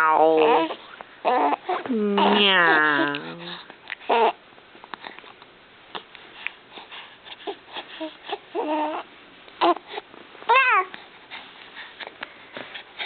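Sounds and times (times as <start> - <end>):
baby cooing and whimpering: 0.0 - 4.4, 7.3 - 11.0.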